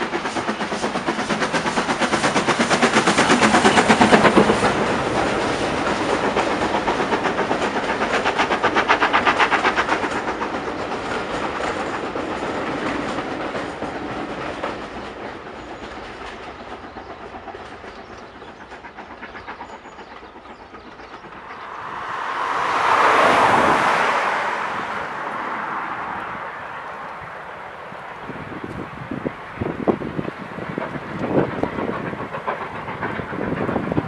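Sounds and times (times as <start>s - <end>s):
train wheels clickety-clack: 0.0s - 34.0s
swell of noise: 21.3s - 28.2s.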